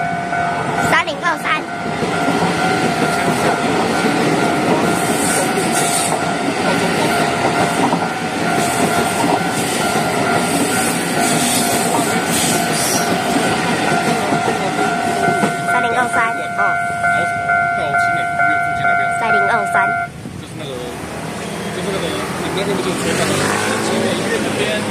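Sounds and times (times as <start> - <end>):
train wheels rumbling on rails: 0.0 - 24.9
clickety-clack over rail joints: 1.5 - 16.2.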